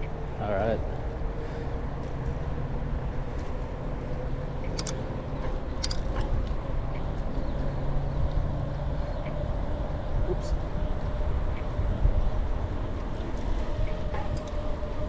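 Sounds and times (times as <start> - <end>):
sharp clicks: 4.6 - 5.1, 5.8 - 6.1
wind on microphone: 9.4 - 15.0.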